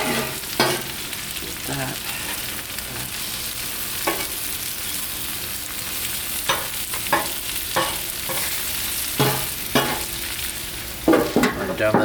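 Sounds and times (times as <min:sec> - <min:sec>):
food sizzling in oil: 0:00.0 - 0:12.0
utensil knocking on griddle: 0:09.2 - 0:10.1, 0:11.1 - 0:12.0.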